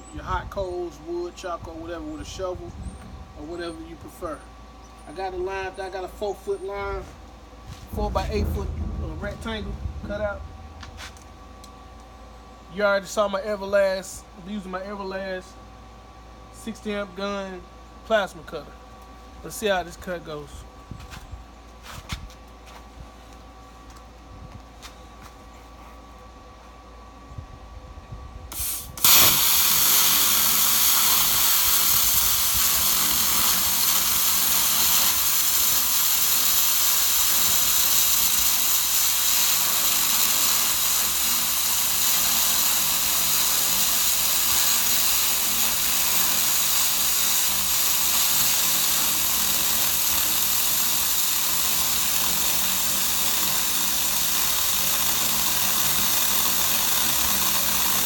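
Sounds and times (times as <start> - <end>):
plasma cutter hissing: 28.5 - 58.0.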